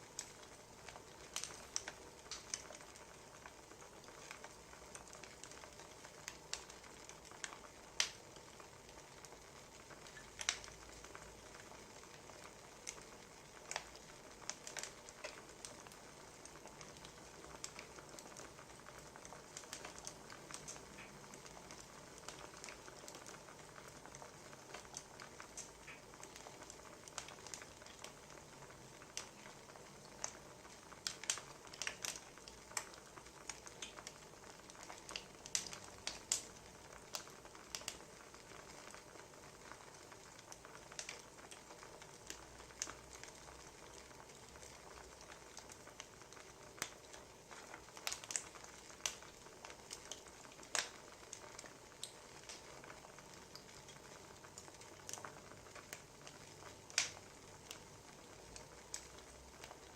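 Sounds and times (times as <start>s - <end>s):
soft steady hiss: 0.0s - 59.9s
wood fire crackling and popping: 0.0s - 59.9s.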